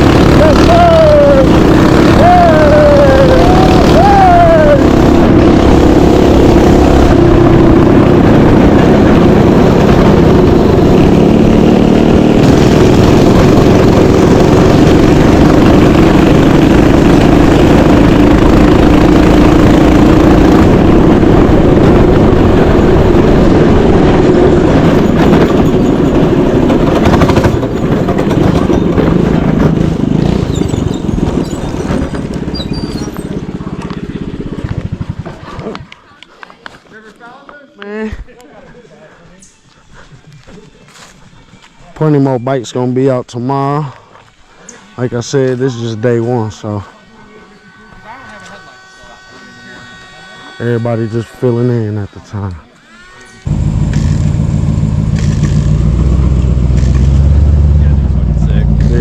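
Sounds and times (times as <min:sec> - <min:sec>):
small bike engine revving high: 0:00.0 - 0:35.4, 0:47.4 - 0:59.0.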